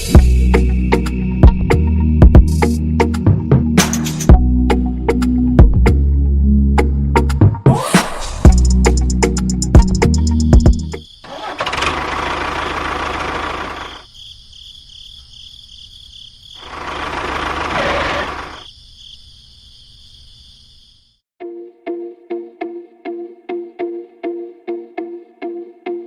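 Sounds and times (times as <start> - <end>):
small motor running: 16.6 - 18.6.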